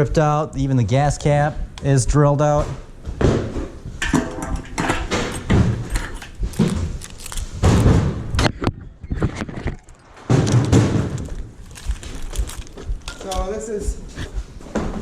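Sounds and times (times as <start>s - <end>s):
metal parts knocking and clattering: 4.0s - 8.4s, 9.3s - 13.6s.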